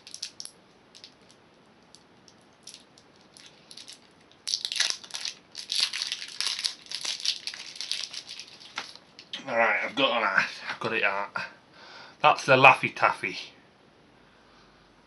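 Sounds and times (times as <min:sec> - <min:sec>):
candy wrapper crinkling: 0:00.0 - 0:09.3.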